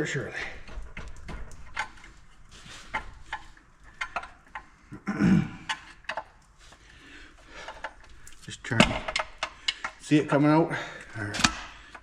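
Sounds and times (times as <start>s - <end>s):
metal clicks and scrapes: 0.4s - 4.8s, 5.6s - 10.2s.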